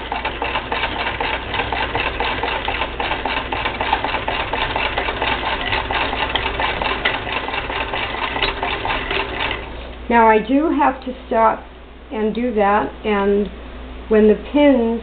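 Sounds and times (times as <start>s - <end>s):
hand-crank sewing machine clatter: 0.0s - 9.7s.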